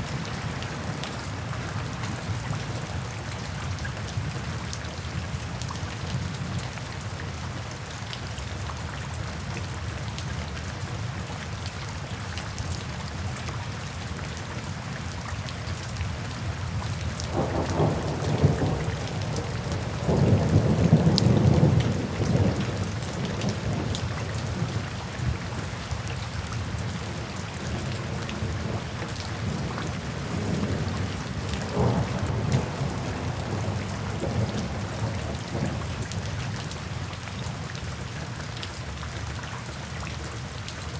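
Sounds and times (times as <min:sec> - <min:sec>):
steady rain falling: 0:00.0 - 0:40.9
thunder rumbling: 0:17.3 - 0:24.8, 0:28.4 - 0:36.2.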